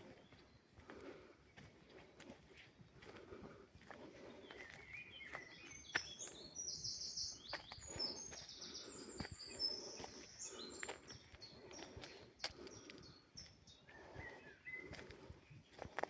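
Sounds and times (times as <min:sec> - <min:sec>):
songbird singing: 0:00.0 - 0:16.0.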